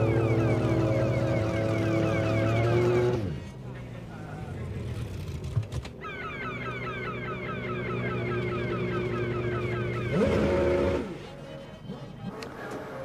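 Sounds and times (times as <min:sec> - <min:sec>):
racing car engine revving: 0:00.0 - 0:03.6, 0:08.0 - 0:13.0.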